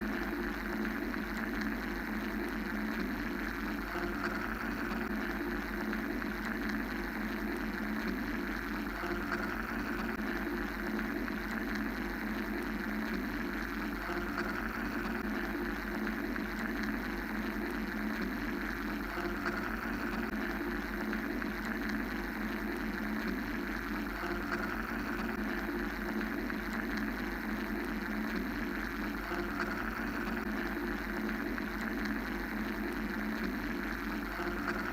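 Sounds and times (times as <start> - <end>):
mechanical drone with whirring hiss: 0.0 - 34.9.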